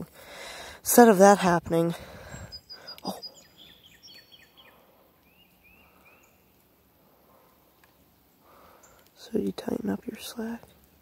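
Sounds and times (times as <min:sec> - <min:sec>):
bird chirps: 0:02.2 - 0:06.6.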